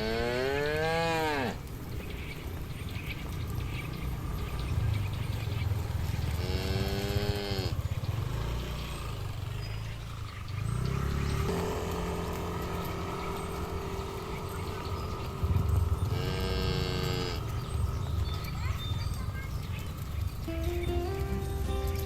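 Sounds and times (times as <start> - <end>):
cattle mooing: 0.0 - 1.7, 6.3 - 7.9, 12.1 - 18.8
low steady rumble: 0.0 - 22.0.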